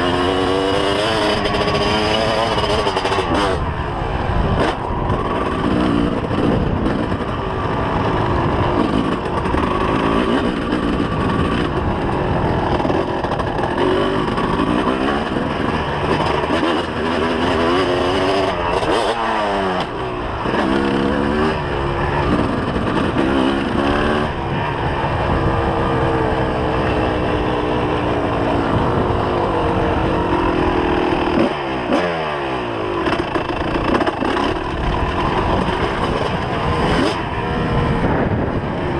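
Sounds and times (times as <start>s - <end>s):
motocross engine revving: 0.0s - 38.9s.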